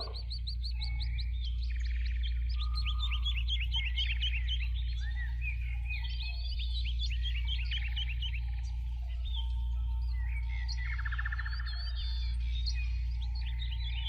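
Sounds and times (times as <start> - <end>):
birds chirping and trilling: 0.0 - 14.0
steady low hum: 0.0 - 14.0.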